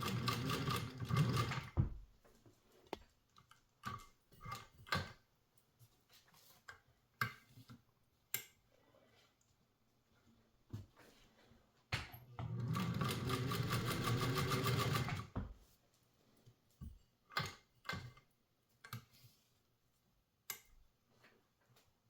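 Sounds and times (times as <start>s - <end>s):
sewing machine stitching: 0.0s - 1.8s, 12.4s - 15.4s.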